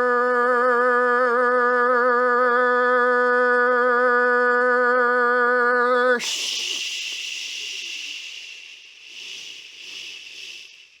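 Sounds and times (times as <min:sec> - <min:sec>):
long hiss: 0:06.2 - 0:11.0.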